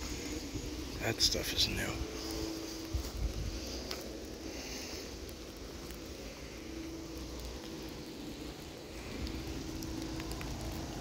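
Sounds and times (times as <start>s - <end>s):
low rumble: 0.0s - 11.0s
rain falling: 0.0s - 11.0s
faint ticks: 2.3s - 11.0s.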